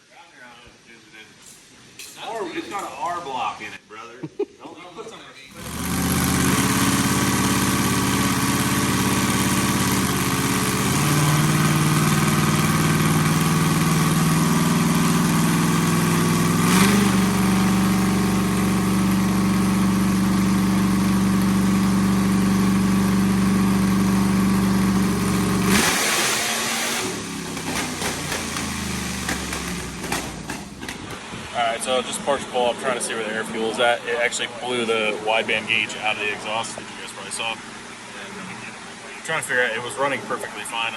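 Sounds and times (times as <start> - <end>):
vee eight engine revving: 5.5 - 31.2.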